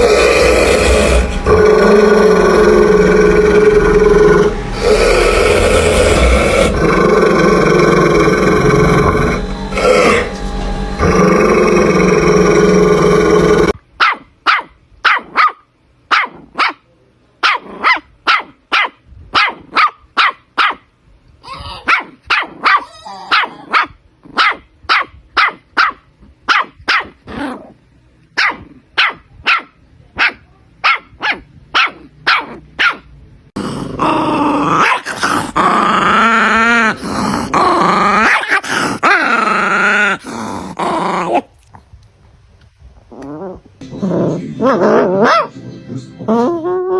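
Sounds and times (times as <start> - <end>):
dog growling: 0.0 - 10.4, 11.0 - 13.8, 27.0 - 27.8, 33.6 - 41.8, 43.1 - 45.5, 46.2 - 46.9
dog barking sharply: 14.0 - 16.8, 17.4 - 20.8, 21.9 - 27.2, 28.4 - 33.0.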